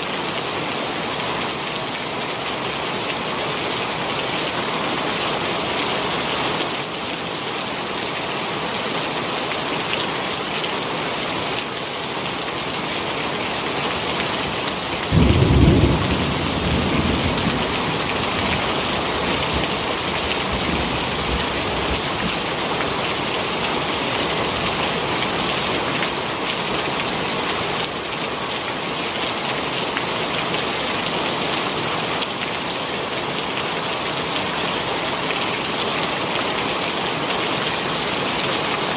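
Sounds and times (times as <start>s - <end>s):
heavy rain falling: 0.0s - 38.9s
low rumble of thunder: 15.1s - 22.1s.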